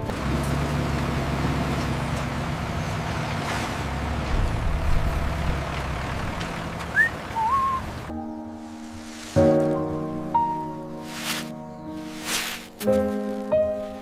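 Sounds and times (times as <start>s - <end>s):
heavy vehicle engine running: 0.0s - 9.7s
rising whistle: 6.9s - 7.8s
wavering whistle tone: 7.0s - 7.8s
music: 8.1s - 14.0s.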